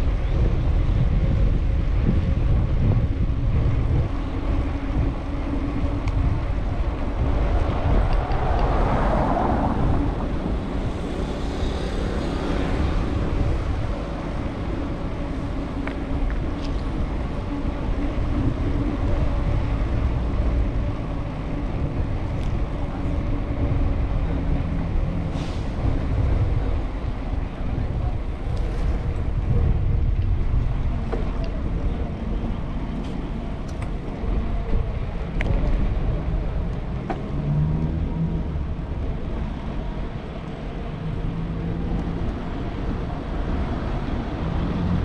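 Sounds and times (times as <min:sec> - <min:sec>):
wind rumbling on microphone: 0:00.0 - 0:45.0
vehicle passing: 0:06.3 - 0:14.1.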